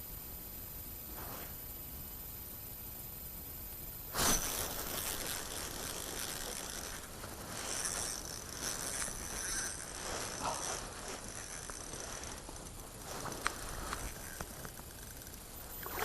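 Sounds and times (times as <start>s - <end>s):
fishing reel gears whirring and clicking: 4.4s - 16.0s.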